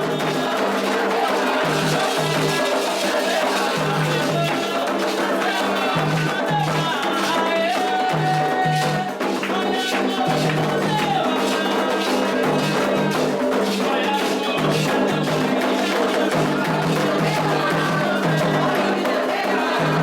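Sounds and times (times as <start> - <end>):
people singing: 0.0 - 20.0
steady drumming: 0.0 - 20.0.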